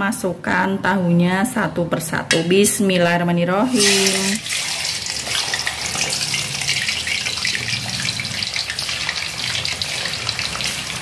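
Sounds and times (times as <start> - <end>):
tofu sizzling in hot oil: 3.7 - 11.0.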